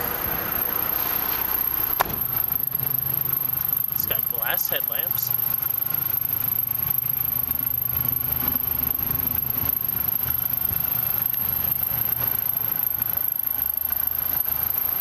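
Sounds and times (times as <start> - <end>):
car engine idling: 0.0 - 6.2.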